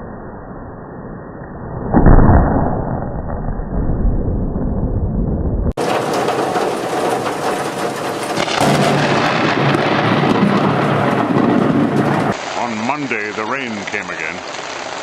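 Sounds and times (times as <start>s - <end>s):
thunder rumble: 1.7s - 13.2s
heavy rain downpour: 5.8s - 15.0s.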